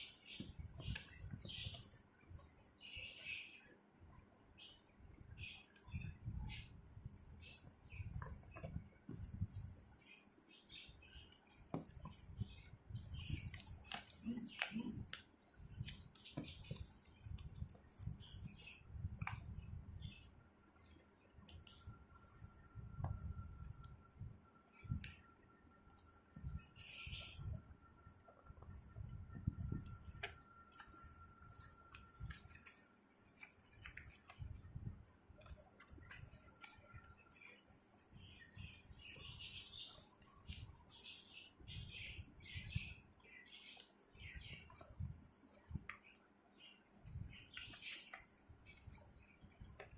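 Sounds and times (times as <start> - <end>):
paper being folded: 0.3 - 2.0, 29.8 - 34.6.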